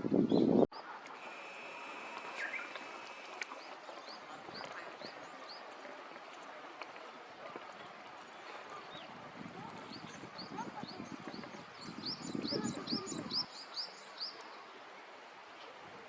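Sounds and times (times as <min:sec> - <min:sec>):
songbird chirping: 0:00.4 - 0:05.8
quiet outdoor ambience: 0:00.8 - 0:09.9.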